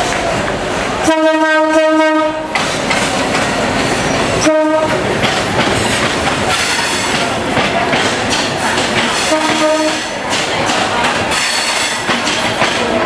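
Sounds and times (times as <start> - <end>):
train horn blasts: 1.1 - 2.5, 4.4 - 5.0, 9.3 - 10.1
train wheels clattering on rails: 1.7 - 13.0.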